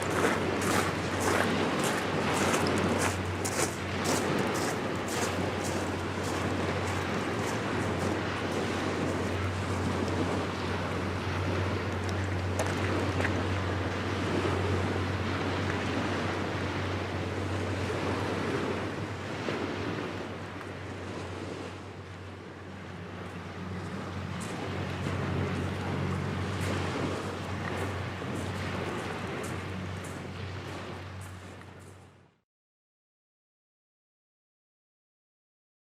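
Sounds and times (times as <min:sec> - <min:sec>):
wind on microphone: 0:00.0 - 0:32.0
steady low hum: 0:00.0 - 0:32.4
waves at water's edge: 0:00.0 - 0:32.4.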